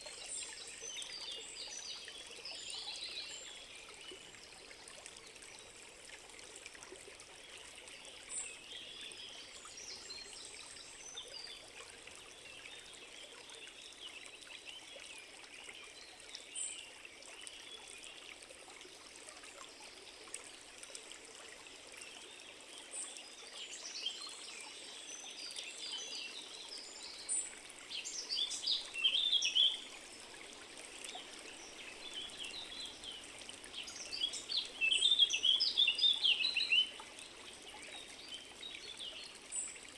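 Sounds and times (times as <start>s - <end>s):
forest stream running: 0.0s - 39.9s
small birds chirping: 25.8s - 30.6s.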